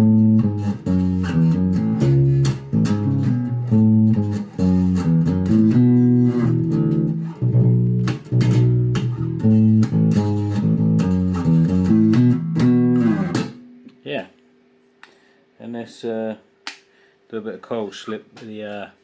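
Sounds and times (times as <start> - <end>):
electric bass plucked notes: 0.0 - 14.0.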